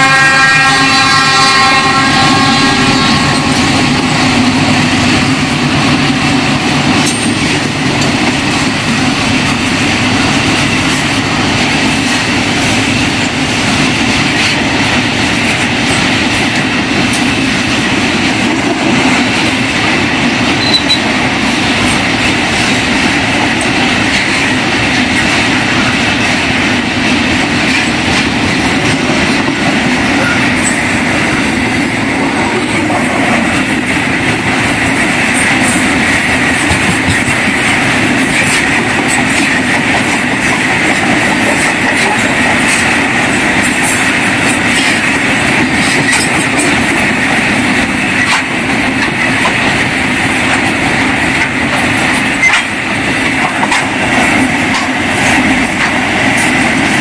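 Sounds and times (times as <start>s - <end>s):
locomotive horn: 0.0s - 4.7s
freight train wheels on rails: 0.0s - 57.0s.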